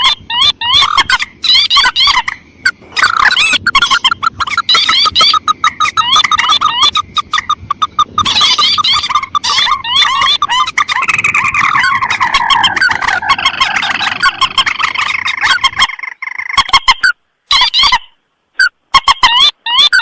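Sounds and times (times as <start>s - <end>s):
rail bird calls: 0.0s - 20.0s.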